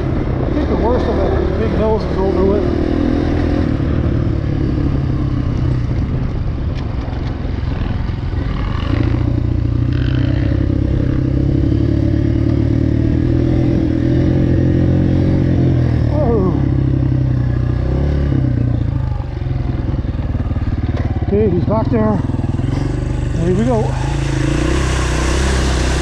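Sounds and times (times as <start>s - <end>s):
dirt bike engine idling: 16.0s - 24.6s.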